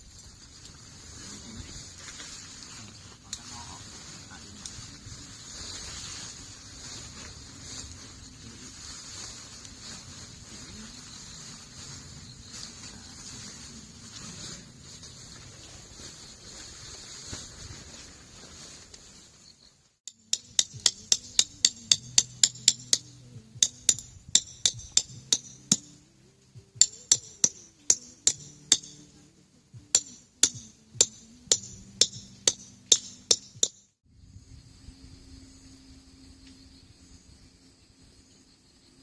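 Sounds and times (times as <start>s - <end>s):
high insect drone: 4.4s - 14.2s, 34.1s - 39.0s
hammer striking tent pegs: 20.1s - 26.0s, 26.8s - 29.1s, 29.9s - 33.8s.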